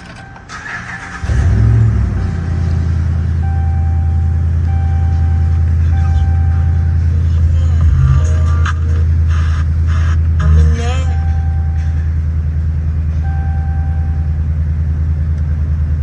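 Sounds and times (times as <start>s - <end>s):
engine starter cranking: 0.0s - 5.5s
dashboard warning chime: 0.0s - 12.3s, 13.1s - 14.5s
engine idling: 0.0s - 16.0s.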